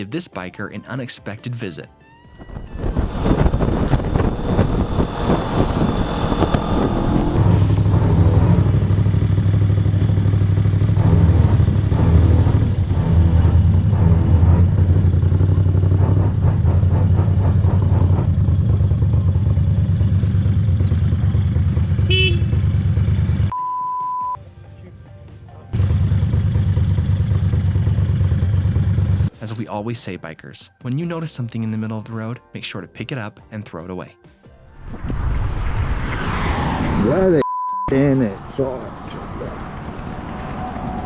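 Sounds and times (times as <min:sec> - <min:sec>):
wind rush on microphone: 0:02.3 - 0:08.0
motorcycle engine running: 0:02.7 - 0:23.5, 0:25.8 - 0:29.4
horn toot: 0:22.0 - 0:22.7
censor bleep: 0:23.5 - 0:24.4, 0:37.4 - 0:38.0.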